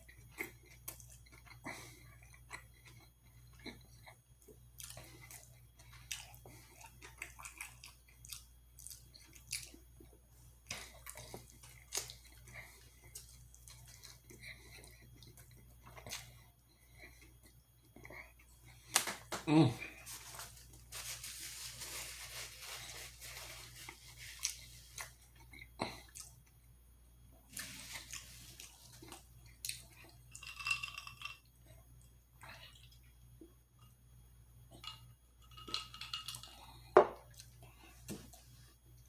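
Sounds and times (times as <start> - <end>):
clinks of dishes and packaging: 30.3 - 31.4, 34.8 - 37.2.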